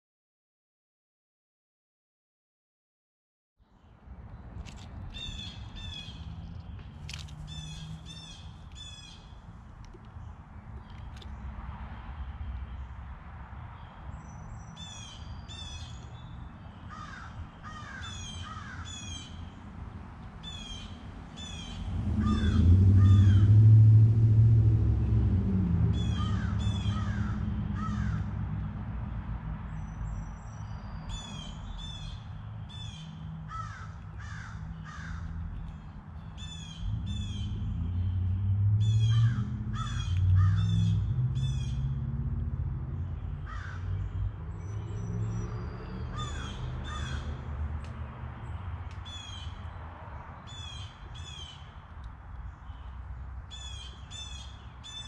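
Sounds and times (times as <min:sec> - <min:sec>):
birds calling: 0:04.3 - 0:11.6, 0:13.8 - 0:19.7, 0:20.3 - 0:23.6, 0:25.9 - 0:42.1, 0:43.0 - 0:55.0
low humming rumble: 0:21.4 - 0:29.5.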